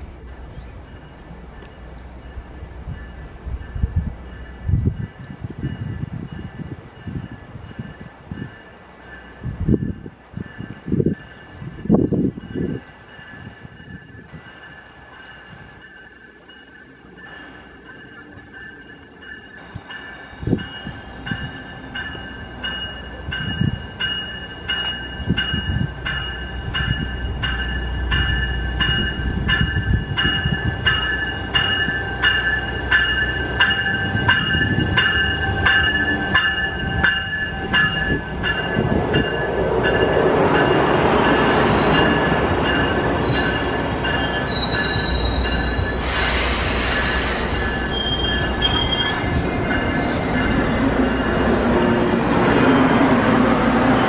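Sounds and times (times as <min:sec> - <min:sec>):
train coaches rumbling past: 0:00.0 - 0:54.0
warning bell ringing: 0:12.5 - 0:46.0
brake and wheel squeal: 0:43.2 - 0:54.0.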